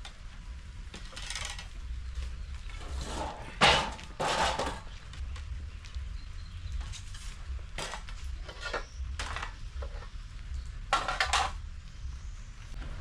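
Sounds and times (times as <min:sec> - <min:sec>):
dishes and cutlery clinking: 0:03.1 - 0:04.9
low rumble: 0:04.8 - 0:13.0.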